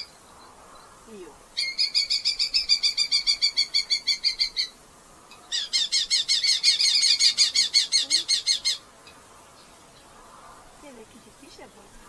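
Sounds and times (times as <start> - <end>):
falcon shrill repeated calls: 1.6 - 4.8, 5.5 - 8.8.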